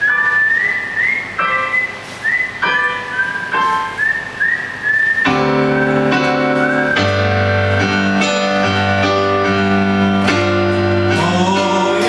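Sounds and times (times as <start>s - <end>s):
keyboard chords: 0.0s - 12.0s
whistle-like melody line: 0.0s - 12.0s
bass: 5.3s - 12.0s.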